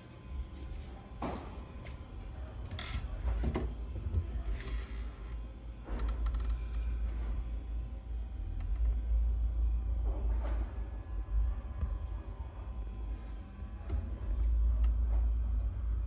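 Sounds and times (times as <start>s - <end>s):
low rumble: 5.2s - 16.0s.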